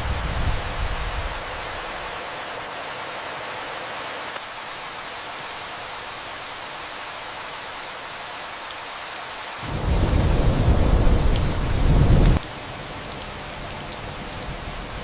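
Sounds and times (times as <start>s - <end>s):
steady rain falling: 0.0s - 15.0s
thunder rumble: 9.6s - 12.4s.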